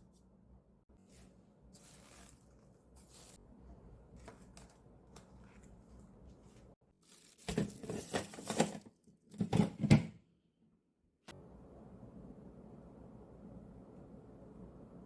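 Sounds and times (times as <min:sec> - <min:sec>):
tearing crinkling noise: 0:04.2 - 0:08.8.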